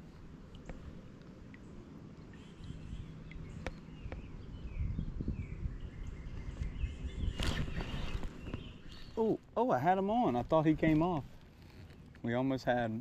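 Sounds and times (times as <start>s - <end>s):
small birds chirping: 0.5s - 12.8s
wind rumble on microphone: 2.6s - 9.2s.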